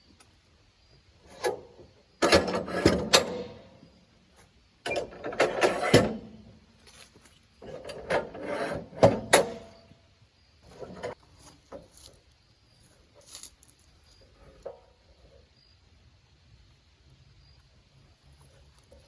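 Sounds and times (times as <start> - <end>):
wood and metal clattering: 1.3 - 4.0, 4.8 - 10.0, 10.6 - 12.1.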